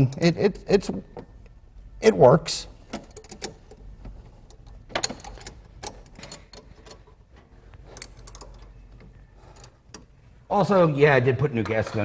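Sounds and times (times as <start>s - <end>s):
hand tools clicking on metal: 7.7s - 10.2s.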